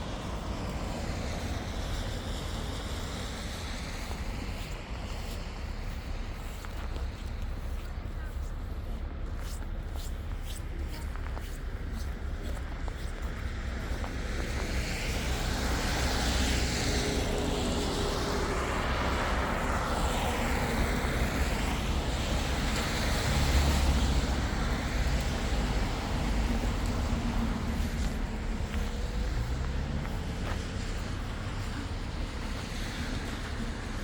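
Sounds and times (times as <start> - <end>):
cars driving past: 11.7 - 34.0.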